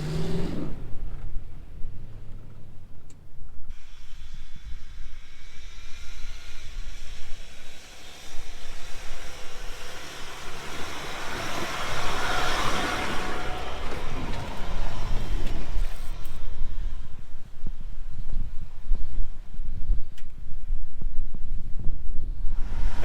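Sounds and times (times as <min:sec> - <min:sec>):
engine and tyres rumbling: 0:00.0 - 0:23.0
broad hiss: 0:03.7 - 0:16.5.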